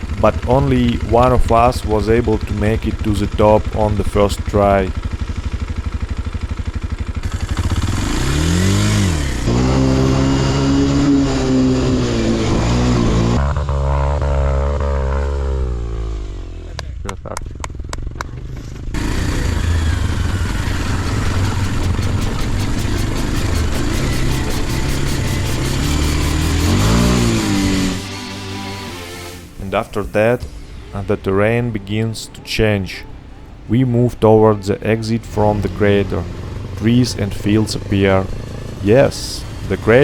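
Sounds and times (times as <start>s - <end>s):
dirt bike engine revving: 0.0s - 40.0s
quick run of clicks: 20.3s - 27.4s.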